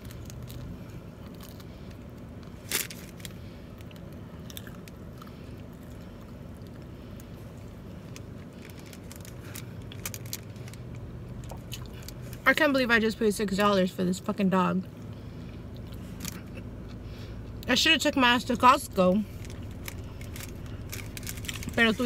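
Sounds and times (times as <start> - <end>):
car engine and air conditioning hum: 0.0 - 22.0
chewing with wet mouth clicks: 11.0 - 12.2, 15.0 - 17.0.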